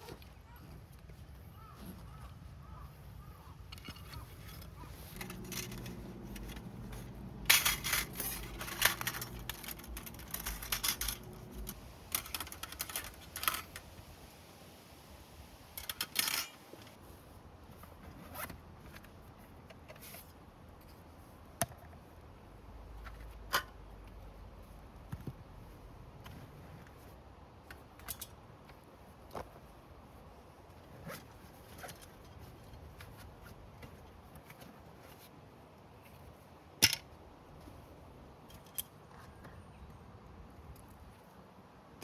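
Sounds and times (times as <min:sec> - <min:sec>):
small clatters: 0:00.0 - 0:13.9
gear rustling and scraping: 0:00.0 - 0:14.0, 0:15.7 - 0:21.4, 0:25.6 - 0:35.4.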